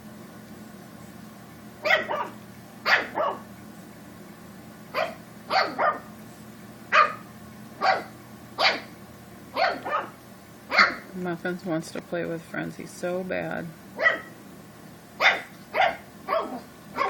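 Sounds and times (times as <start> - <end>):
puppy barking: 1.8 - 3.5, 4.9 - 6.1, 6.9 - 8.9, 9.5 - 11.1, 14.0 - 14.4, 15.2 - 17.0.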